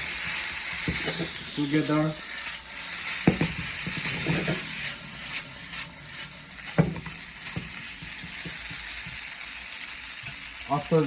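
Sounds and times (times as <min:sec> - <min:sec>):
noodles sizzling in a pan: 0:00.0 - 0:11.0
utensil knocking against pan: 0:00.8 - 0:01.2, 0:03.2 - 0:04.7, 0:06.7 - 0:09.0.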